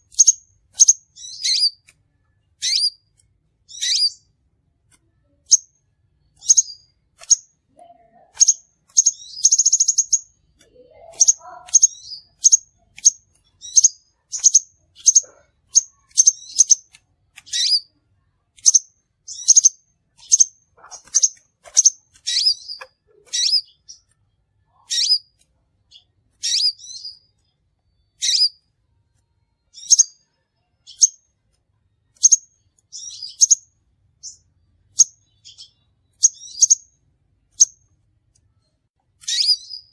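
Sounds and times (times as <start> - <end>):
buzzy bird trill: 0.0 - 1.9, 2.6 - 3.1, 3.7 - 4.3, 6.3 - 7.5, 8.1 - 18.0, 18.6 - 24.1, 24.7 - 28.6, 29.7 - 30.2, 32.1 - 36.9, 39.2 - 39.9
bird chirping: 0.0 - 4.4, 5.1 - 38.0, 38.6 - 39.9.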